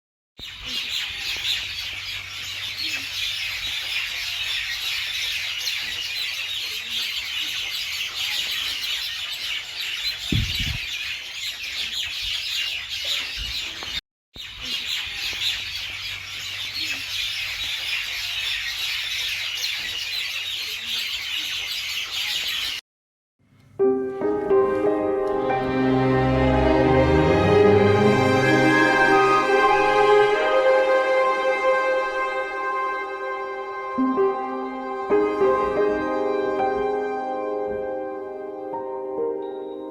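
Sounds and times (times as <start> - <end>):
chorus of small birds chirping: 0.4 - 22.8.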